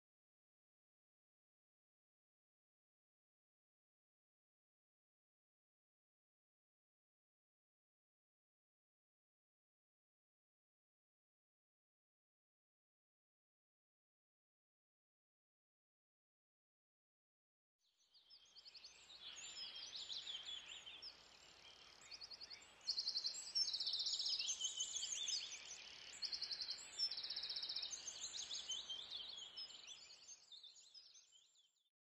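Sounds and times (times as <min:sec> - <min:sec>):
birds chirping and trilling: 0:18.4 - 0:31.8.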